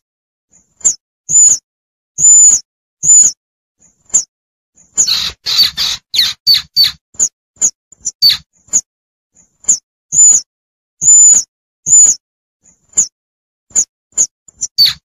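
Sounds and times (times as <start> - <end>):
squirrel squeaking and chirping: 0.8 - 1.6, 2.2 - 3.3, 4.9 - 8.8, 9.6 - 10.4, 11.0 - 12.2, 13.8 - 15.0.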